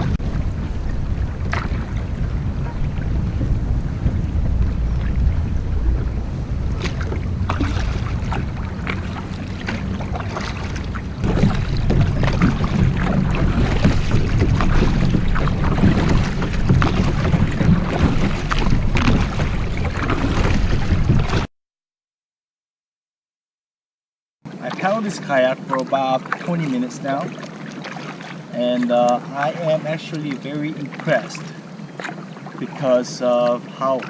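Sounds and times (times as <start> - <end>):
paddle splashing water: 0.0 - 21.5, 24.5 - 34.0
wind buffeting microphone: 0.0 - 21.5.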